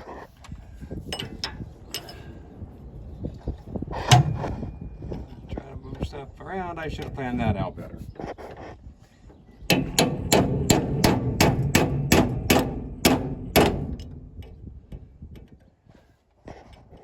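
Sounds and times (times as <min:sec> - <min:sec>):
hammer striking steel punch: 0:04.1 - 0:04.7, 0:09.7 - 0:14.4.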